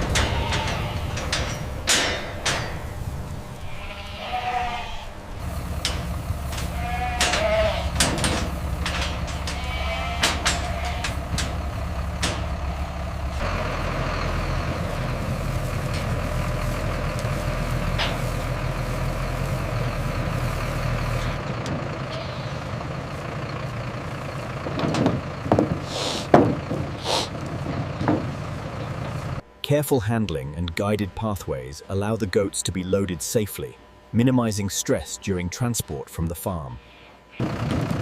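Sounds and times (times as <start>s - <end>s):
truck engine idling: 0.0s - 4.0s, 5.0s - 29.5s, 37.3s - 38.0s
short hisses: 25.8s - 26.3s, 27.0s - 27.4s.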